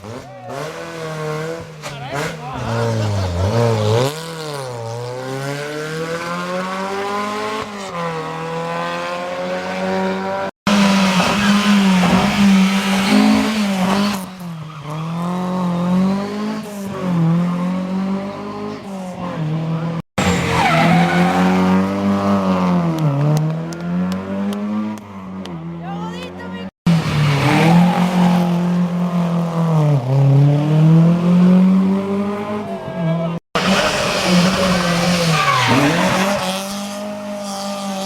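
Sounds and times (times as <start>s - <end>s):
rally car engines revving: 0.0s - 38.0s
tyre squeal: 34.4s - 36.4s.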